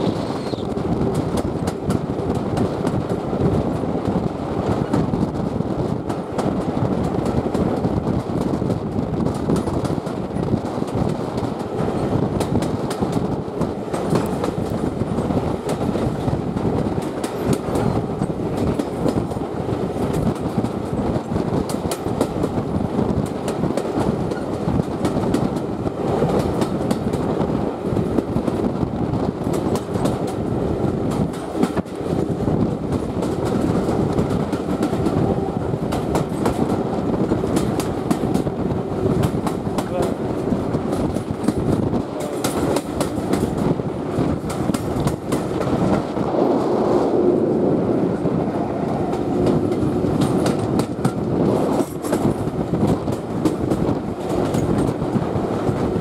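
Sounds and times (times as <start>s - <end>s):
wheels rumbling on rails: 0.0s - 56.0s.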